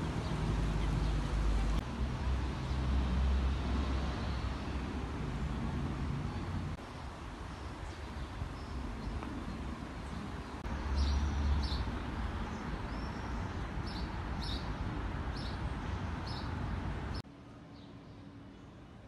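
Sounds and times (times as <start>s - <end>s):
rushing city background: 0.0s - 7.5s.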